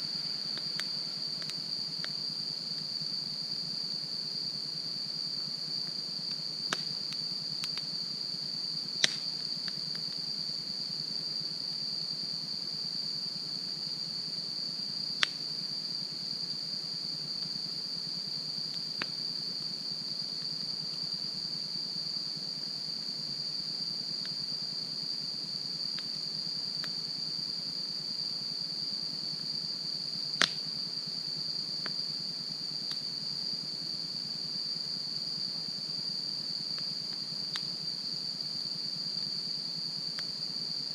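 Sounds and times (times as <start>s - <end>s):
high-pitched insect trill: 0.0s - 40.9s
campfire crackling and popping: 0.5s - 2.2s, 6.3s - 7.9s, 9.0s - 10.0s, 30.4s - 30.7s.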